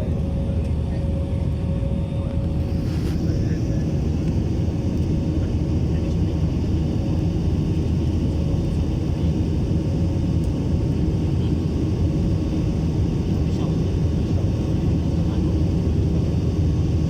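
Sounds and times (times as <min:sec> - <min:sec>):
airplane engines rumbling: 0:00.0 - 0:17.0.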